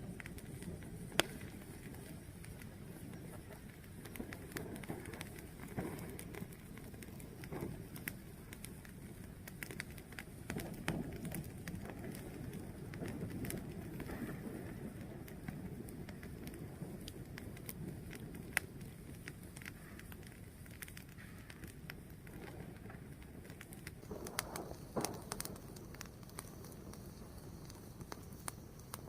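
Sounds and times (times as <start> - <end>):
fire burning with low rumble: 0.0 - 29.0
fire crackling and popping: 0.0 - 29.0.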